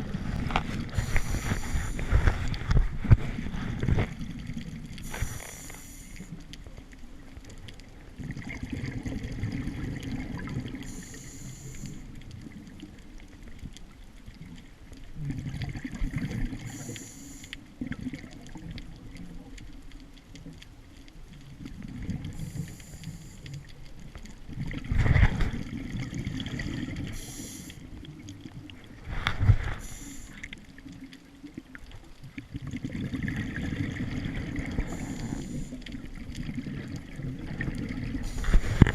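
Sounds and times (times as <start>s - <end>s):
regulator hiss on inhalation: 1.0s - 2.1s, 5.0s - 6.4s, 10.9s - 12.1s, 16.6s - 17.6s, 22.4s - 23.5s, 27.1s - 27.9s, 29.7s - 30.4s, 34.9s - 35.8s
exhalation bubbles rumbling: 8.2s - 11.0s, 15.1s - 16.8s, 24.5s - 38.9s.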